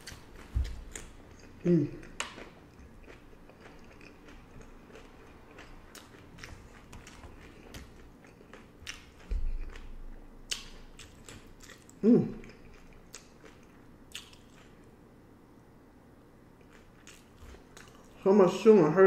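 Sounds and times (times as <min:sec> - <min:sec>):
crunchy chewing: 0:00.0 - 0:15.0, 0:16.6 - 0:18.2
person humming: 0:01.6 - 0:02.2, 0:12.0 - 0:12.4.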